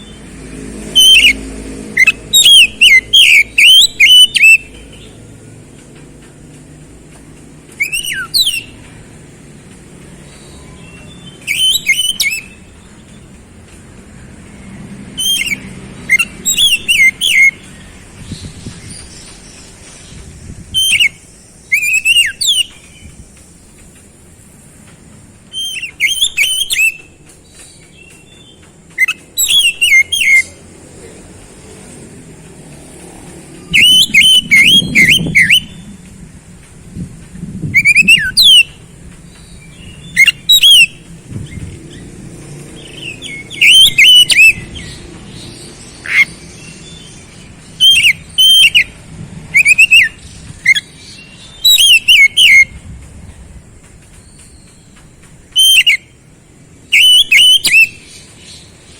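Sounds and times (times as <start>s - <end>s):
magpie-robin singing: 0.0s - 5.6s, 6.6s - 13.5s, 14.2s - 23.9s, 25.4s - 30.7s, 33.5s - 36.0s, 37.6s - 52.8s, 54.1s - 56.2s, 56.8s - 58.9s.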